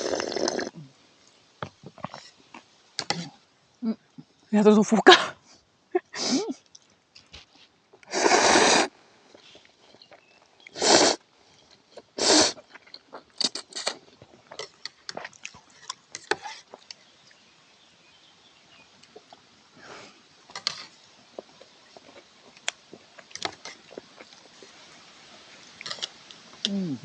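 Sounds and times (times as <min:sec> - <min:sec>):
loud noodle slurps: 0:00.0 - 0:00.7, 0:08.1 - 0:08.9, 0:10.8 - 0:11.2, 0:12.2 - 0:12.7, 0:13.4 - 0:14.0.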